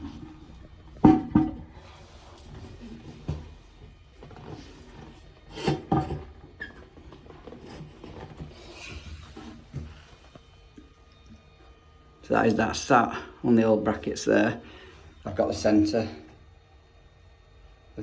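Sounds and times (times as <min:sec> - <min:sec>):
rubbing and scraping: 0:00.0 - 0:10.4.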